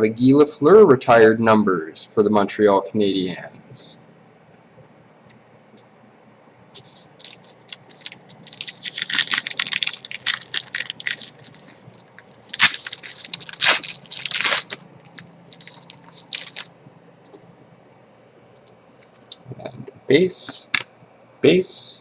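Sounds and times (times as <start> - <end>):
card pack wrapper tearing and crinkling: 6.8 - 16.7.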